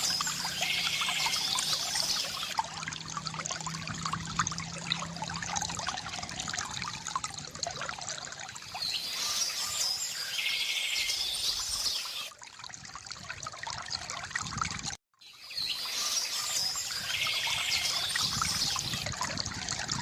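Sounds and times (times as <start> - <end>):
birds chirping and trilling: 0.0 - 2.6, 8.6 - 12.3, 15.2 - 20.0
water trickling from bamboo fountain: 0.0 - 15.0, 15.6 - 20.0.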